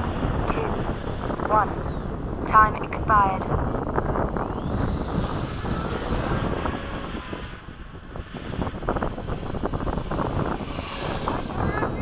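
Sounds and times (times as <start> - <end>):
model airplane motors whining: 0.0 - 12.0
wind on microphone: 0.0 - 12.0.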